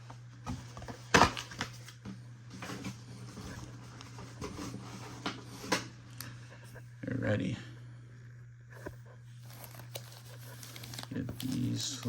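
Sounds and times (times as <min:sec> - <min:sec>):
low electrical hum: 0:00.0 - 0:12.0
cardboard and foil packs rustling: 0:09.3 - 0:12.0.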